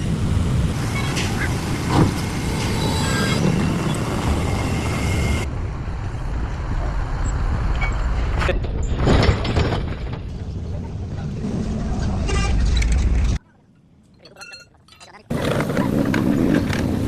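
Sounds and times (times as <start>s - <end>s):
heavy engine rumbling: 0.0s - 13.4s.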